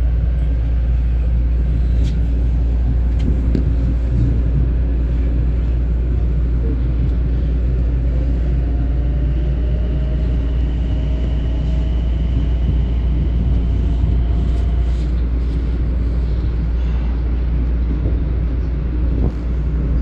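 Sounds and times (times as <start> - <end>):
faint train whine: 0.0 - 20.0
train rumbling past: 0.0 - 20.0.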